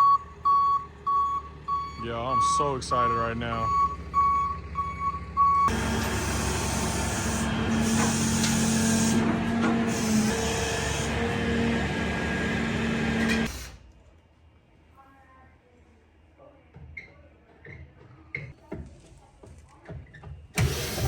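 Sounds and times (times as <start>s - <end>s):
reversing beeper: 0.0s - 6.6s
truck machinery hiss and hum: 5.7s - 13.8s.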